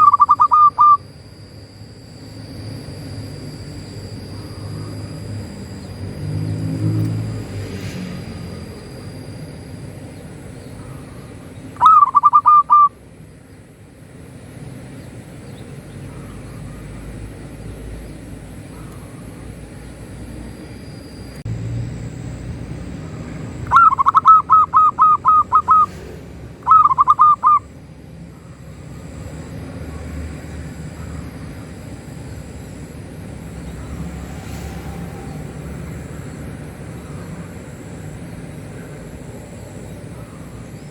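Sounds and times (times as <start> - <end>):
dove cooing: 0.0 - 1.0, 10.8 - 13.0, 23.0 - 26.0, 26.6 - 27.7
steady low rumble: 13.0 - 40.9.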